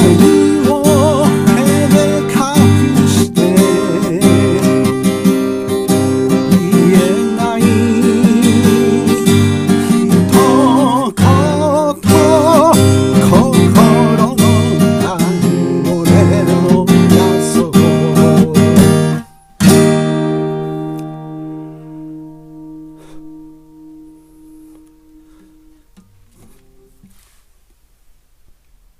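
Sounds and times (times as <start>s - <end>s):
person singing: 0.0s - 19.3s
acoustic guitar strumming: 0.0s - 27.4s.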